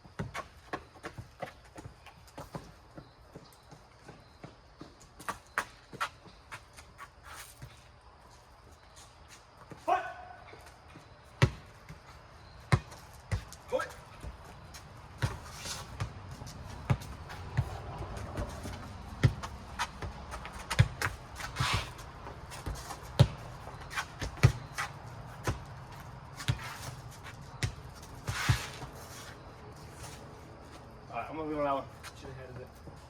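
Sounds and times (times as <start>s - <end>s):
shoe scuffs: 4.8s - 8.0s, 12.9s - 30.9s
ball bouncing and being struck: 22.6s - 23.5s, 24.1s - 25.7s.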